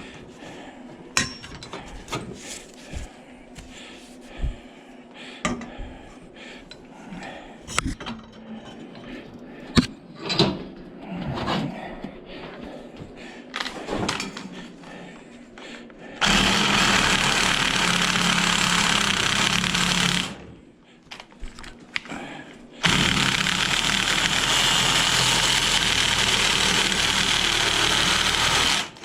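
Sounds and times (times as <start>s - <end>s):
power tool cutting metal: 16.2s - 20.4s, 22.8s - 29.0s.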